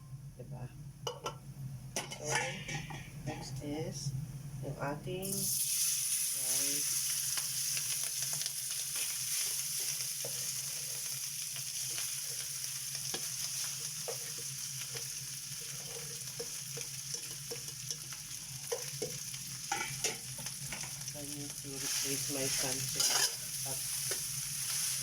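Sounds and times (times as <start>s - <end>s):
rice sizzling in a pan: 5.2s - 25.0s
spatula scraping and tapping pan: 13.1s - 21.0s, 22.6s - 23.4s, 24.0s - 24.8s.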